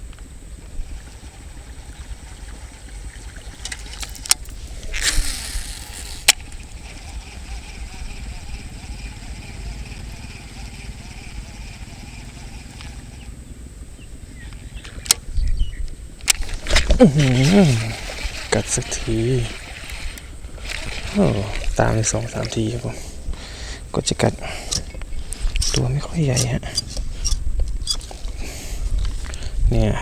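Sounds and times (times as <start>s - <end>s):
faint high whir: 0.0s - 30.0s
wind rumbling on microphone: 0.0s - 30.0s
sharp clicks: 0.9s - 7.9s, 14.5s - 23.5s, 24.3s - 28.4s.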